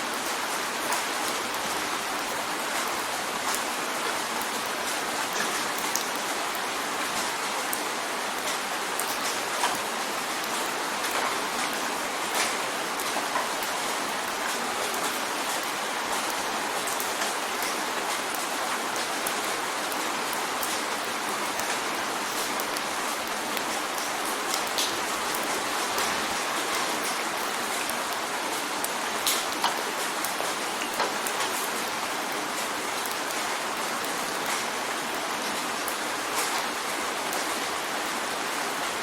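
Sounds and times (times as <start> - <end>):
rain on a window: 0.0 - 39.0
raindrops ticking on glass: 10.6 - 34.7.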